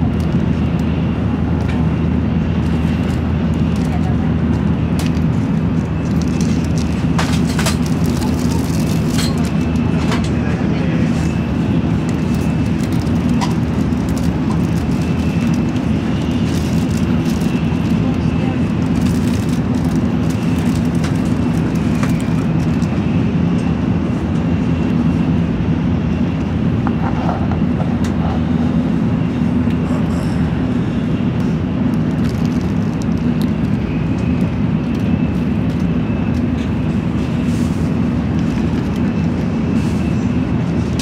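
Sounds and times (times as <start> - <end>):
train rumble from inside: 0.0 - 41.0.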